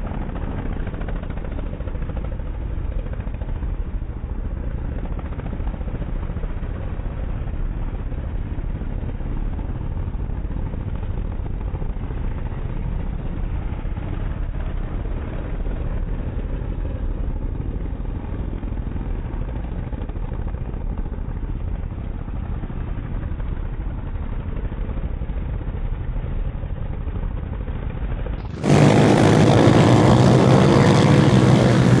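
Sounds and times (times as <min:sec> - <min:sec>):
motorcycle engine rumbling: 0:28.4 - 0:32.0.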